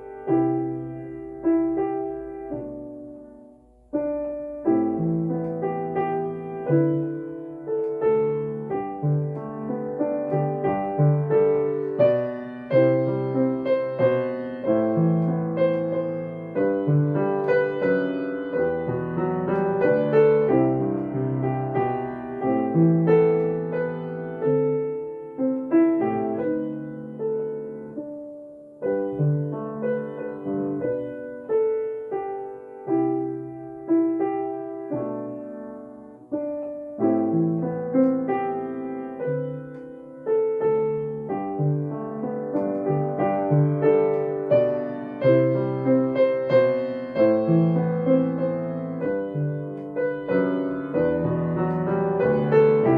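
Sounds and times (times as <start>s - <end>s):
solo piano jazz-style hymn: 0.0s - 52.9s.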